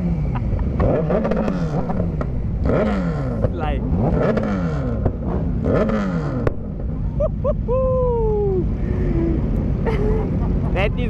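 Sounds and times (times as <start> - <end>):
motorcycle engine revving: 0.0 - 7.2
exhaust pop: 0.3 - 7.1
person exclaiming: 7.6 - 10.0.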